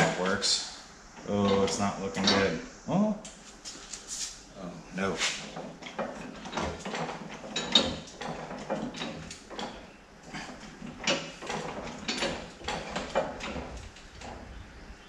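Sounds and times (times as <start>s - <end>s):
hydraulic jack clicking and knocking: 5.3s - 14.6s.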